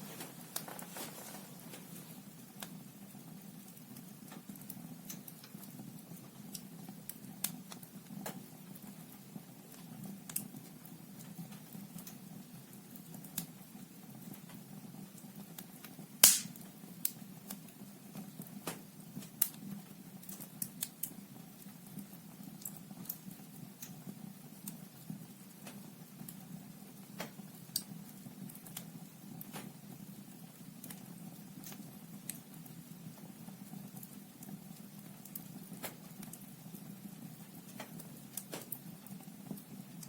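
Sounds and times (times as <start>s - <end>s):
wood fire crackling and popping: 0.0s - 40.0s.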